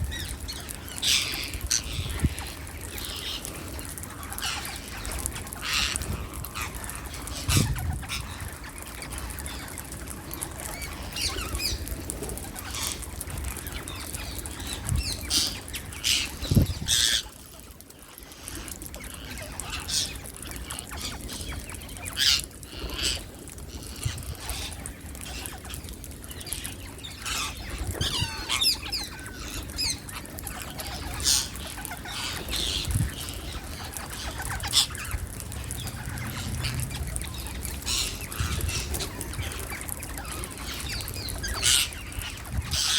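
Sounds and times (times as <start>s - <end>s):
parakeets screeching: 27.2s - 42.9s
wings flapping: 30.7s - 41.8s.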